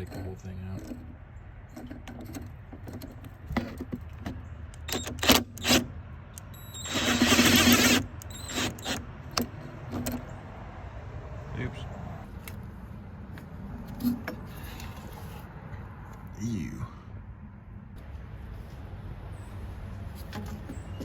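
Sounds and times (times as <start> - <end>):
metallic clicks and knocks: 0.0 - 6.6, 7.3 - 10.4.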